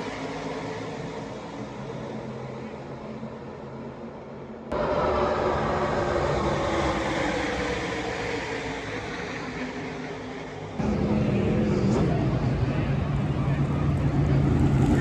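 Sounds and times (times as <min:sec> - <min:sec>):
race truck engines passing: 0:10.8 - 0:15.0.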